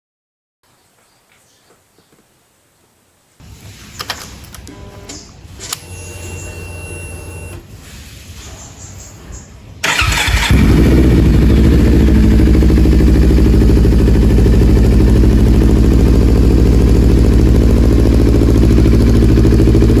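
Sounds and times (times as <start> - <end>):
motorcycle engine idling: 9.8 - 20.0.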